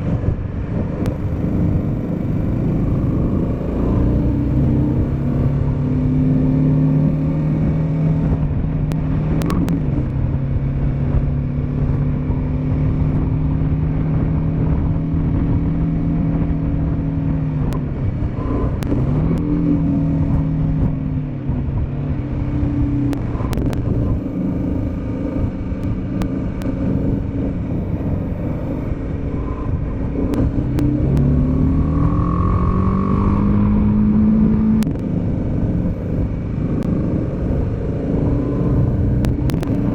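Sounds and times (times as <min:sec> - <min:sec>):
motorcycle engine running: 0:00.0 - 0:39.9
rushing wind and road noise: 0:00.0 - 0:39.9.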